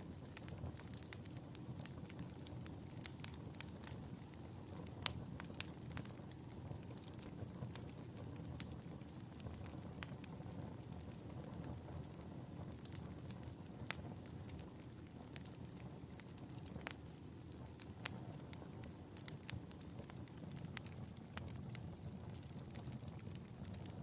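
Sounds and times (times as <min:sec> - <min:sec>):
fire crackling and popping: 0:00.0 - 0:24.0
fire rumbling: 0:00.0 - 0:24.0.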